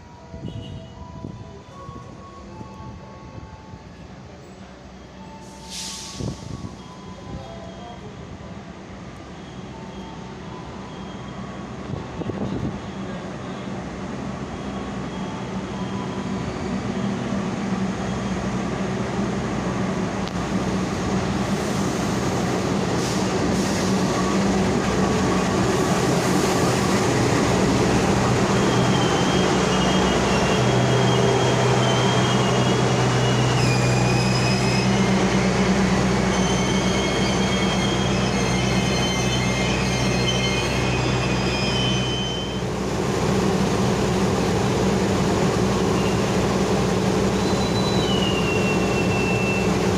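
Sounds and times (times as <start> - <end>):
train running: 1.2 - 49.9
wheel squeal on rails: 28.5 - 42.7, 47.3 - 49.9.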